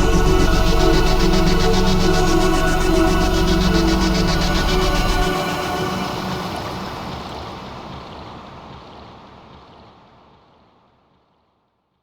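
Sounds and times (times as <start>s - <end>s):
wash of noise: 0.0s - 9.5s.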